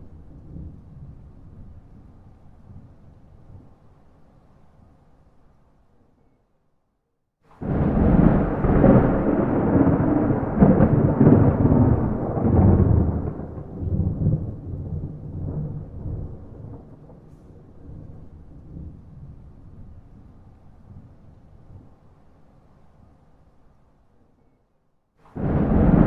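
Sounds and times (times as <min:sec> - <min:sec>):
thunder cracking and rumbling: 0:00.0 - 0:03.8, 0:07.6 - 0:22.0, 0:25.3 - 0:26.0.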